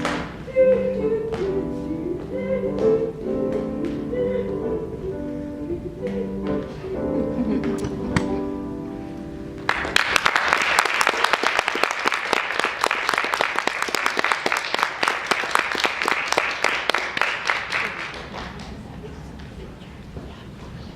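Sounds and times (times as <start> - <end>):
audience applauding: 9.6 - 19.0.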